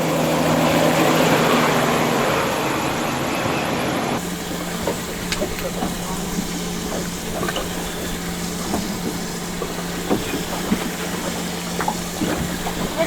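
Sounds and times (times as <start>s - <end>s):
boat motor hum: 0.0s - 13.0s
water sloshing and splashing: 4.2s - 13.0s.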